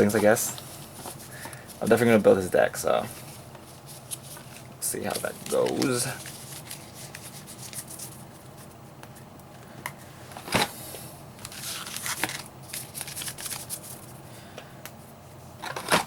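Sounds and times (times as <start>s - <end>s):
cards rustling: 3.1s - 8.7s, 11.4s - 14.2s.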